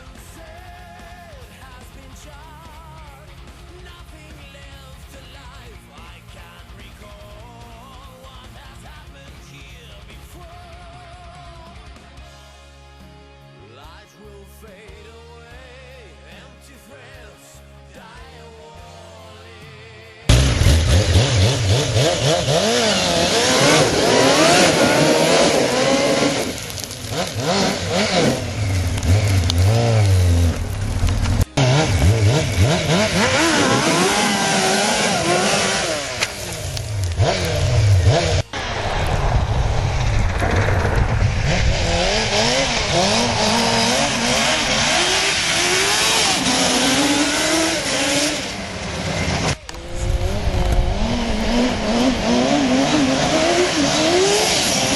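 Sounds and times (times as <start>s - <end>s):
motorcycle engine revving hard: 20.3s - 54.9s.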